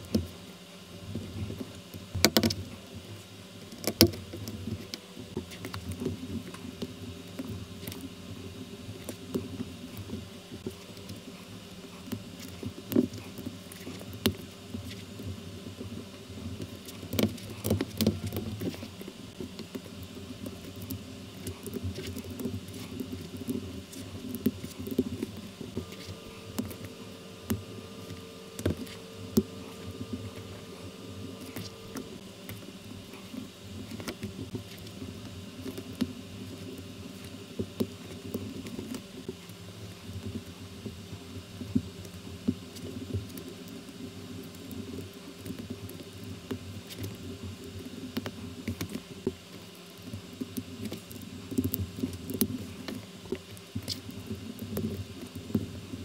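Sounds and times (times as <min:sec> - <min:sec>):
background hiss: 0:00.0 - 0:56.0.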